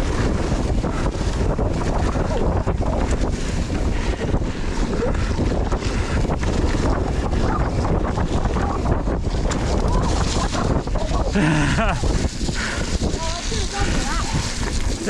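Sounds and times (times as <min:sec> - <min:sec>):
bike rattling over rough ground: 0:00.0 - 0:15.0
wind rushing over microphone: 0:00.0 - 0:15.0.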